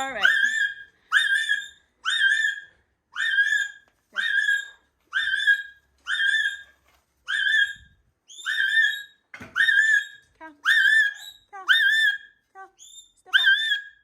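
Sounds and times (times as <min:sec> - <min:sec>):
parrot whistling calls: 0:07.3 - 0:14.0.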